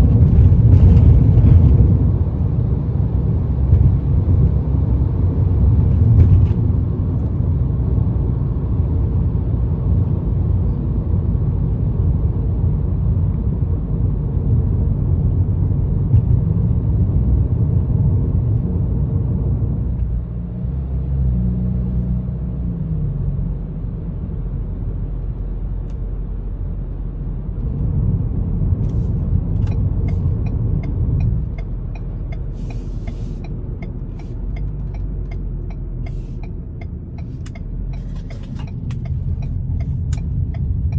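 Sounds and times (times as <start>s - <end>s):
car exhaust rumble: 0.0s - 40.9s
wind and road noise: 0.0s - 40.9s
evenly spaced ticks: 31.2s - 40.9s.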